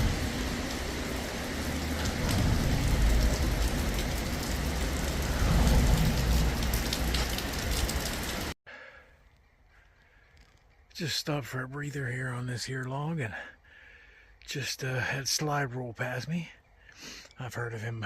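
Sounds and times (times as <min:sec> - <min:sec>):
low rumbling: 0:00.0 - 0:08.5
steady rain falling: 0:00.0 - 0:08.6.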